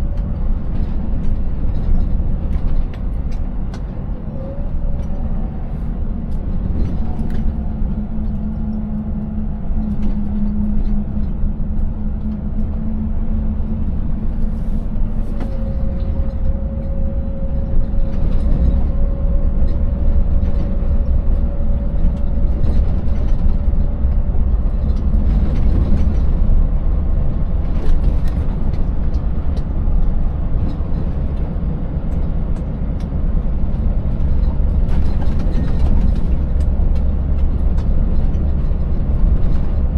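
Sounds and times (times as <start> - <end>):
truck engine drone: 0.0 - 39.9
truck knocks and rattles: 0.0 - 39.9.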